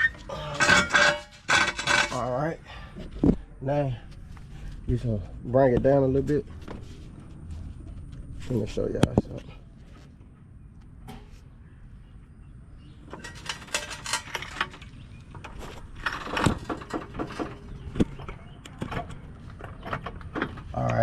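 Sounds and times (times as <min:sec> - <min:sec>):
floor jack clicks and rattles: 0:13.1 - 0:20.7.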